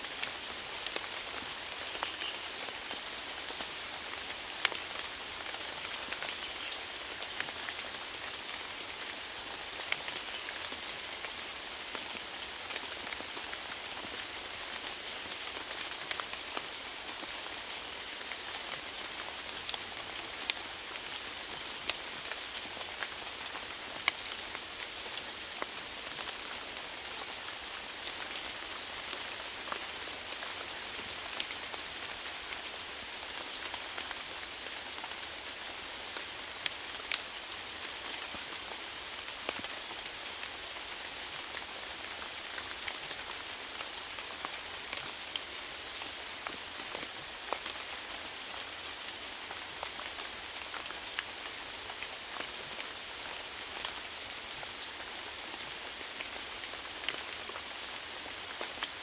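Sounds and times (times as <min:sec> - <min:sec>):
rain hissing on a surface: 0:00.0 - 0:59.0.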